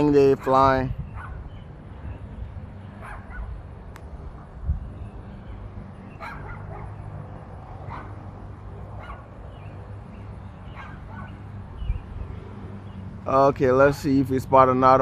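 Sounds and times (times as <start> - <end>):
dog barking: 1.1 - 1.4, 3.0 - 3.5, 6.2 - 7.0, 7.8 - 8.2, 8.8 - 9.3, 10.7 - 11.4.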